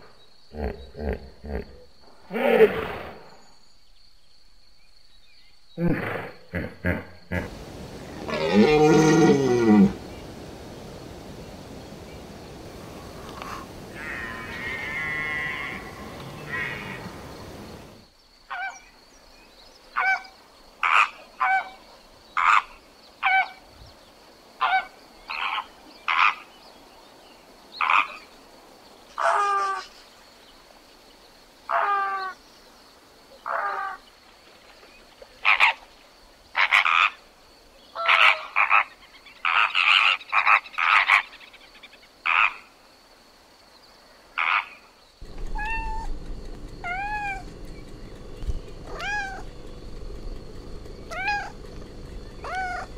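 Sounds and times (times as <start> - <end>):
hippopotamus call: 6.9 - 10.0, 13.3 - 17.9, 44.4 - 52.9
flamingos calling: 12.9 - 18.0, 44.4 - 52.9.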